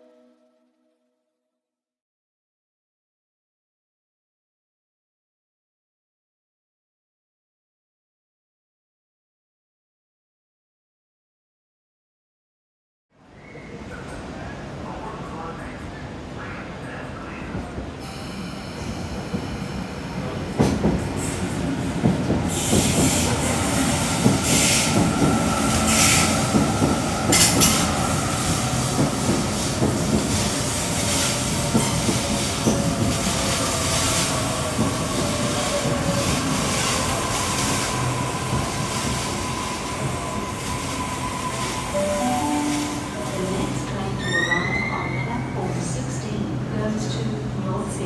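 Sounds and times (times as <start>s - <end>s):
train braking whine: 18.0s - 20.4s.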